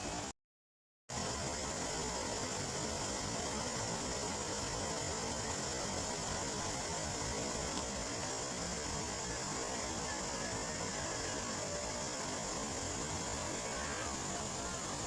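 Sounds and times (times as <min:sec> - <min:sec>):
rain falling on water: 0:06.1 - 0:15.0.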